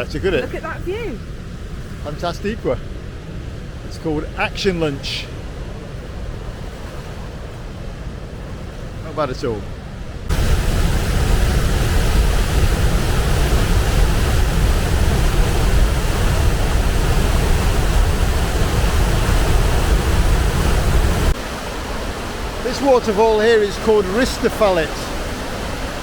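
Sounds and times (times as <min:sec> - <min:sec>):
waterfall rushing: 0:10.3 - 0:26.0.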